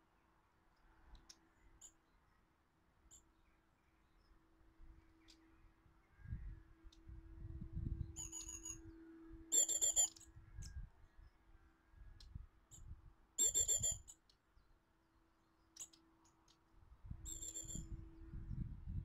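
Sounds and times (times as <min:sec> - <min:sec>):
bird trilled call: 0:08.2 - 0:08.8, 0:09.5 - 0:10.2, 0:13.4 - 0:14.2, 0:17.3 - 0:17.9.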